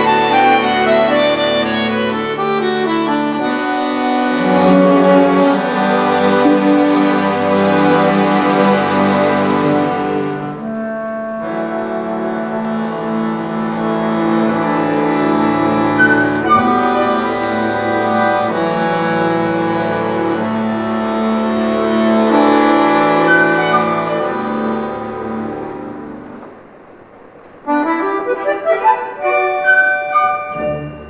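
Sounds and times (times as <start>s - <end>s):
chamber orchestra playing chords: 0.0s - 26.6s, 27.7s - 31.0s.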